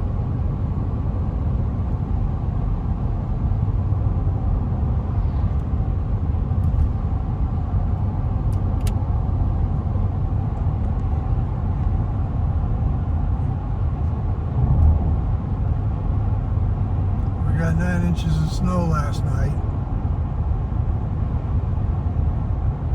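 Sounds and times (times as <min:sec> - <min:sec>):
car engine: 0:14.0 - 0:19.6.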